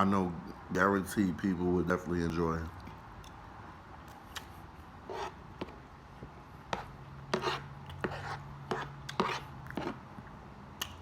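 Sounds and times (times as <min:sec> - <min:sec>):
chewing and mouth smacks: 0:04.1 - 0:04.6.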